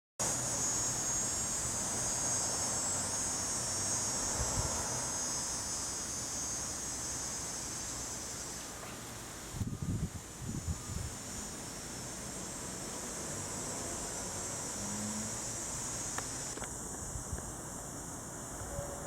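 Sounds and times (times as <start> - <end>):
high-pitched insect chorus: 0.2 - 19.0
low wind rumble: 4.2 - 5.1, 9.5 - 11.2, 15.7 - 19.0.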